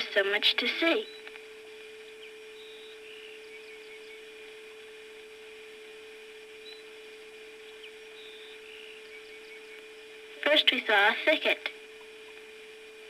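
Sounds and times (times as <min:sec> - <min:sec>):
steady hum: 0:00.0 - 0:13.0
faint bird chirps: 0:00.9 - 0:01.3, 0:02.0 - 0:04.4, 0:06.4 - 0:07.0, 0:07.6 - 0:10.2.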